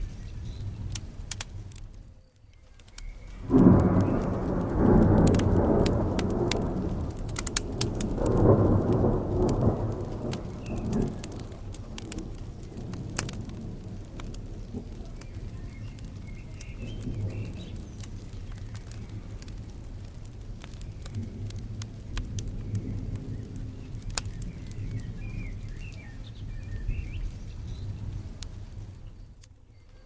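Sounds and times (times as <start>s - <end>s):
thunder rumbling: 0.0s - 2.1s, 3.0s - 29.5s
steady rain: 0.0s - 30.0s
wood fire crackling: 0.0s - 30.0s.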